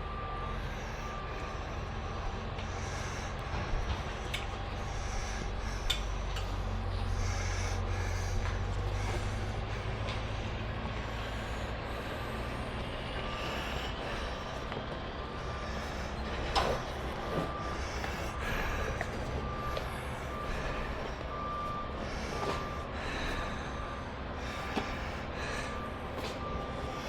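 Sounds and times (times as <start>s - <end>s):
large vehicle engine rumbling: 0.0s - 27.0s
reversing beeper: 0.0s - 27.0s.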